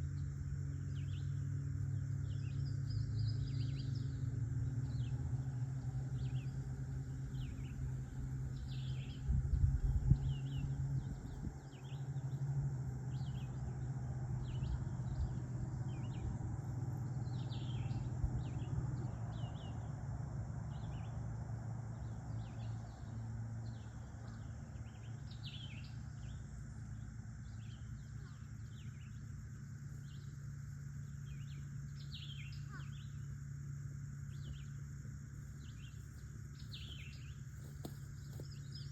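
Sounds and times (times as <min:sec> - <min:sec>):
small birds chirping: 0:00.0 - 0:20.0, 0:21.8 - 0:38.9
low rumble: 0:04.8 - 0:20.0.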